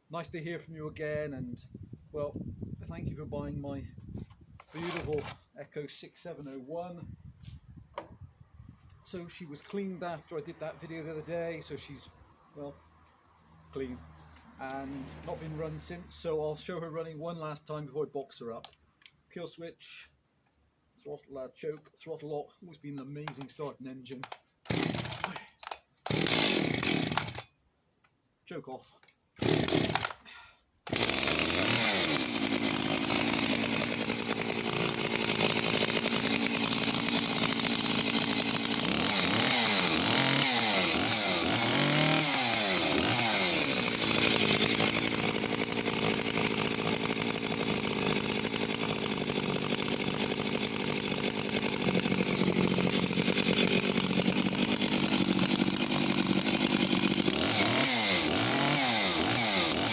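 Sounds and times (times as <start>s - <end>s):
chainsaw engine revving: 4.6s - 5.4s, 24.6s - 27.5s, 29.4s - 30.2s, 30.9s - 59.9s.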